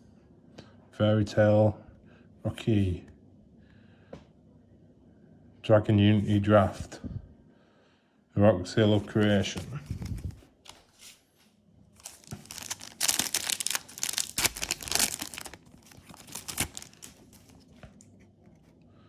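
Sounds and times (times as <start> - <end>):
foil wrapper tearing and crinkling: 12.0 - 18.1.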